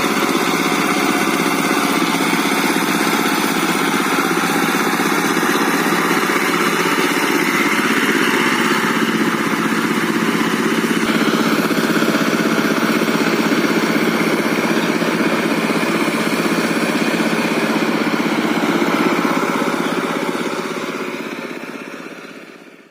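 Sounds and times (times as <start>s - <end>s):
walking tractor diesel engine running: 0.0s - 22.9s.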